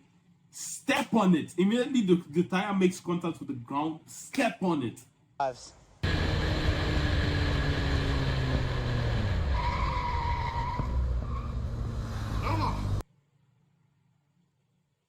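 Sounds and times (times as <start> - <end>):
car engine running: 6.0 - 10.1
high squeal: 9.3 - 12.4.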